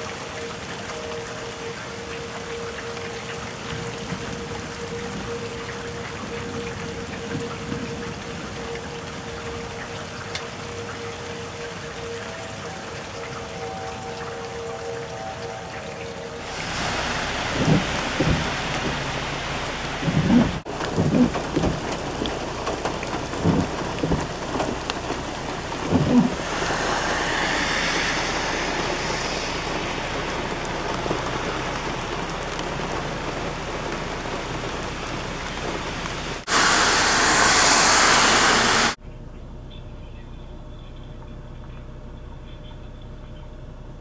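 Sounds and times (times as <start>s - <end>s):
heavy rain pouring: 0.0s - 39.0s
low thunder booms: 16.5s - 21.9s, 25.7s - 32.2s.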